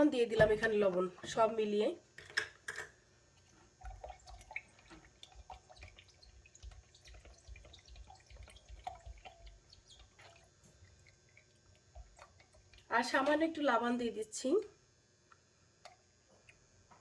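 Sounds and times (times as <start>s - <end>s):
liquid sloshing and dripping: 3.3s - 13.4s.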